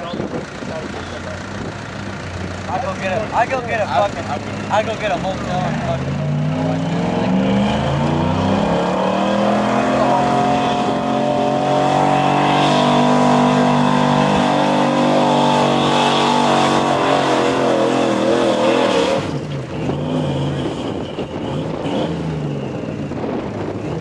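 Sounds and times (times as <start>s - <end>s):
truck engine at high revs: 0.0s - 24.0s.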